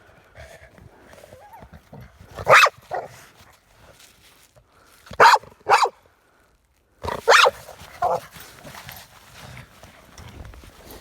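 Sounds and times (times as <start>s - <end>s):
dog barking: 2.4s - 3.1s, 5.2s - 6.0s, 7.1s - 8.2s.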